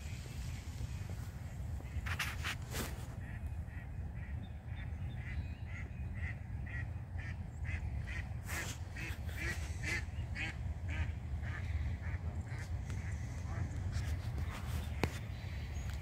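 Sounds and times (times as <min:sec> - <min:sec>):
steady low rumble: 0:00.0 - 0:16.0
birds honking calls: 0:01.8 - 0:16.0.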